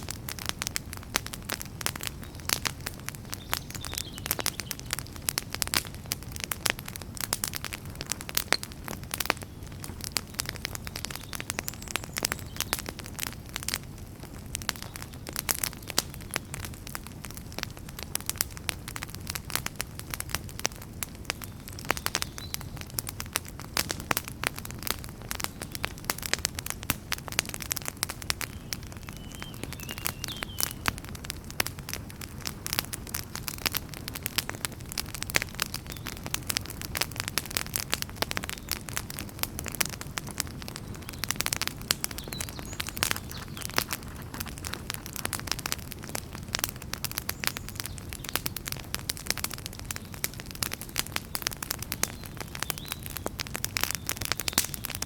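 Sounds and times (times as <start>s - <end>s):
fire crackling and popping: 0.0s - 55.0s
low rumble of flames: 0.0s - 55.0s.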